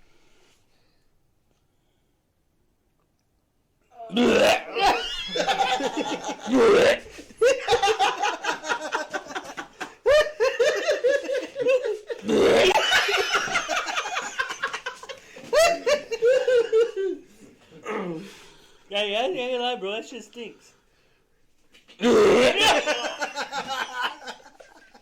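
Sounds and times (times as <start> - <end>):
people laughing hard: 4.8 - 17.2, 22.0 - 25.0.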